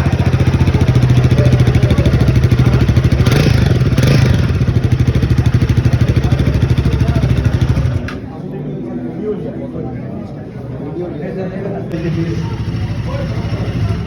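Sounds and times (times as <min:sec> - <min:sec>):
motorcycle engine idling: 0:00.0 - 0:08.2, 0:12.0 - 0:14.0.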